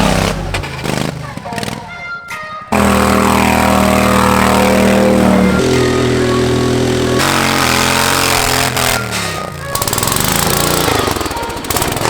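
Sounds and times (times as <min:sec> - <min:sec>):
lawn tractor engine revving: 0:00.0 - 0:12.0.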